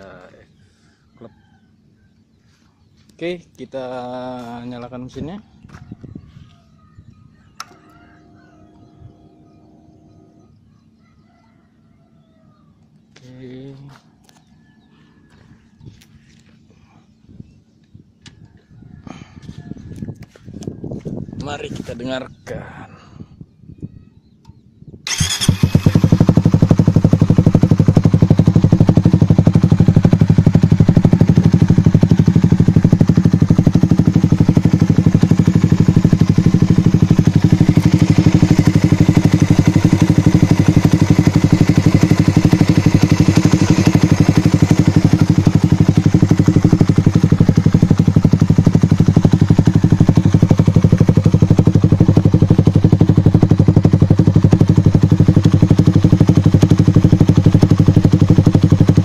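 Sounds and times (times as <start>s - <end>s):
motorcycle engine idling loudly: 25.1s - 59.0s.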